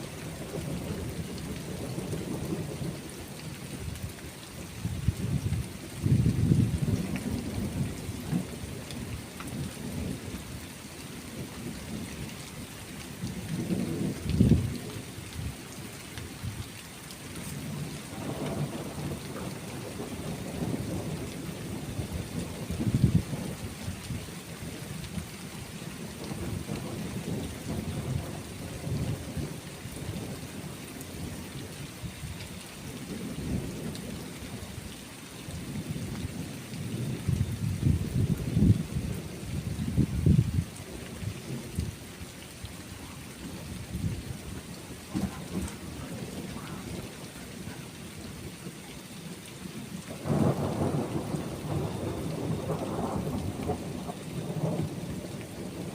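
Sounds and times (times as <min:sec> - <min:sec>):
rain hissing: 0:00.0 - 0:55.9
rolling thunder: 0:04.8 - 0:10.3, 0:13.4 - 0:15.6, 0:17.6 - 0:24.2, 0:26.0 - 0:31.4, 0:35.6 - 0:41.9, 0:45.1 - 0:47.7, 0:50.2 - 0:55.9.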